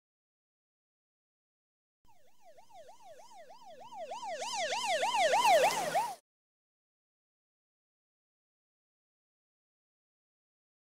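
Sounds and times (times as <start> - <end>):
siren wailing: 2.1 - 6.2.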